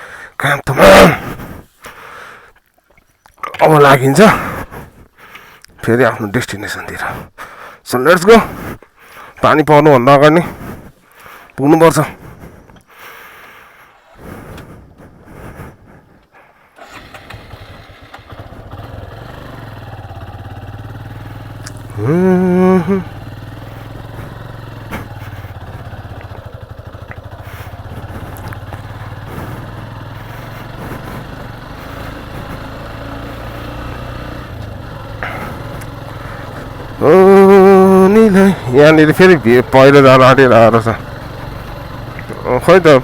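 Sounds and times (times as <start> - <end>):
motorcycle engine running: 16.8 - 43.0
loud wavering vocal sound: 21.8 - 23.2.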